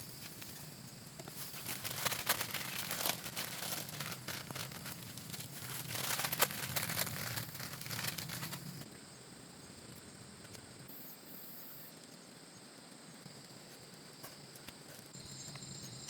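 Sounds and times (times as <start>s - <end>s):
crickets trilling: 0.0s - 16.0s
rustling crinkling handling noise: 1.2s - 8.8s.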